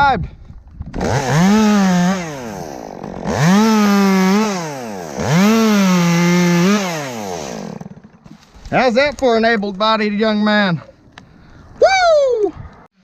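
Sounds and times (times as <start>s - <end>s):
chainsaw cutting limbs: 0.7s - 9.9s.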